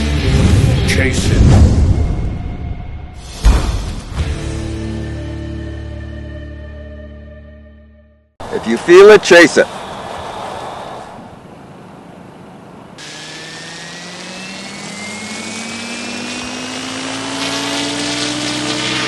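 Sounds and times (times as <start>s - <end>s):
rc helicopter rotor whine: 13.0s - 19.0s.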